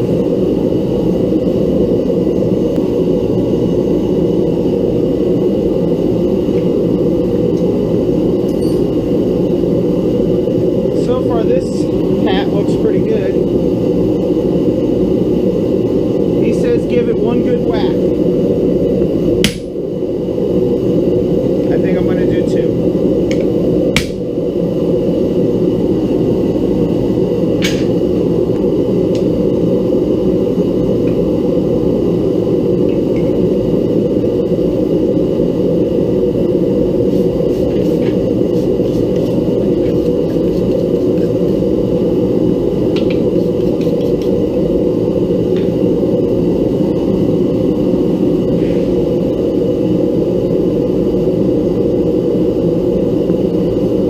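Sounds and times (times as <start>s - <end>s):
forge burner rushing: 0.0s - 54.0s.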